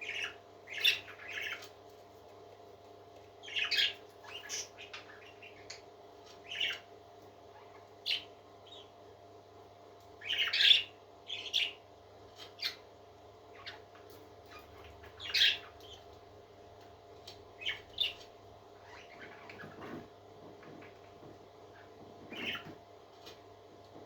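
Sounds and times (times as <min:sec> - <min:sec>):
parrot squawking and chirping: 0:00.0 - 0:01.7, 0:03.4 - 0:06.9, 0:10.2 - 0:11.8, 0:12.4 - 0:12.8, 0:13.5 - 0:16.0, 0:18.8 - 0:20.0, 0:21.7 - 0:22.8.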